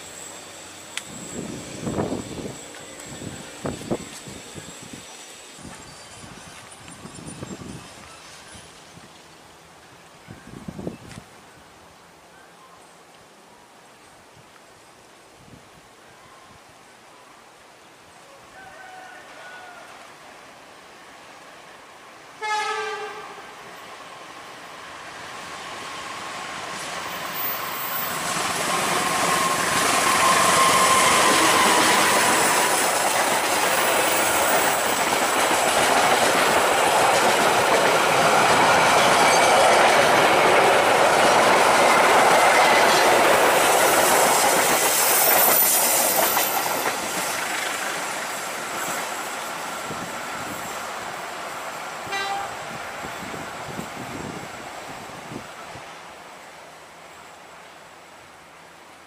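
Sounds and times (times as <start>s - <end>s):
train passing rumble: 0.0s - 10.8s, 19.9s - 59.0s
wheels clickety-clack: 29.4s - 49.1s.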